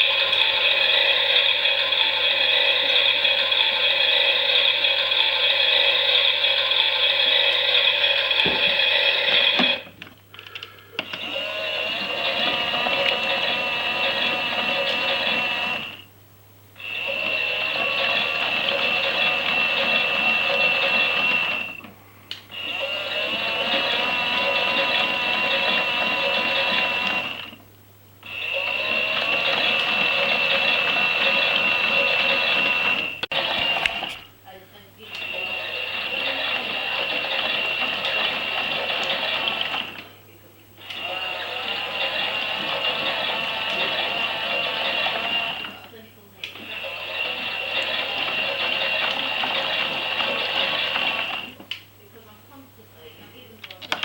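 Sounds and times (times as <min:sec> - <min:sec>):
small electric motor whining: 0:00.0 - 0:09.9, 0:11.0 - 0:16.1, 0:16.8 - 0:21.9, 0:22.5 - 0:27.6, 0:28.2 - 0:34.2, 0:35.0 - 0:40.1, 0:40.8 - 0:51.6
toy motor and gears whirring: 0:40.8 - 0:45.9, 0:46.6 - 0:51.6.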